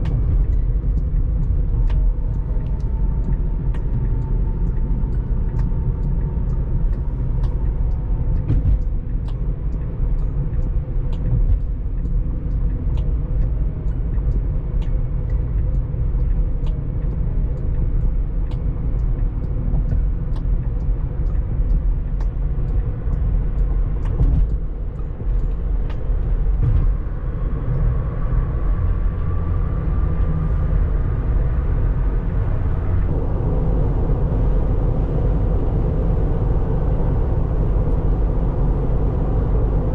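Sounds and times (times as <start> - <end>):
light ticks: 0.0 - 30.0
road and tyre rumble: 0.0 - 39.9.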